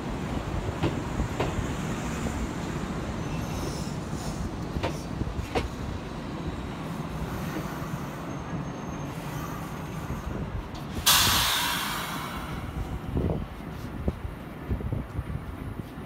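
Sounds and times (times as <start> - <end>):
rail car running gear rumble: 0.0 - 16.0
air brake hiss: 11.0 - 12.9.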